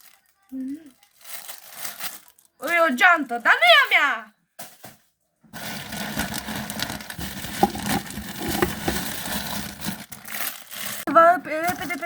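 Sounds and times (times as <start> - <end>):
plastic packaging crinkling: 0.0 - 3.4, 5.6 - 11.1.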